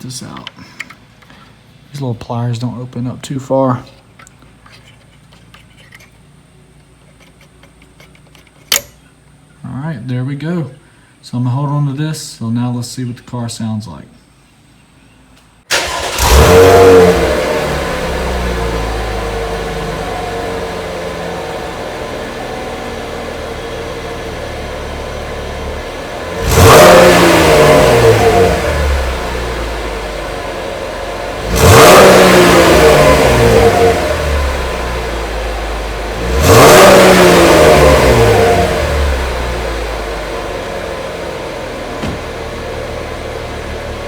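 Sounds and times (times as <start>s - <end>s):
car engine starting and revving: 15.7s - 44.0s.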